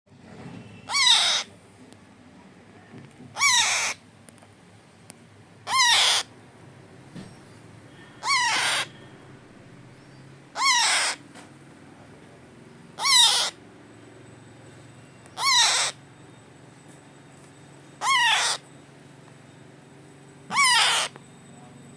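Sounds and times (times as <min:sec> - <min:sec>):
parrot chick squawking: 0:00.9 - 0:01.5, 0:03.4 - 0:04.0, 0:05.6 - 0:06.3, 0:08.2 - 0:09.0, 0:10.5 - 0:11.2, 0:13.0 - 0:13.6, 0:15.4 - 0:16.0, 0:18.0 - 0:18.6, 0:20.5 - 0:21.2.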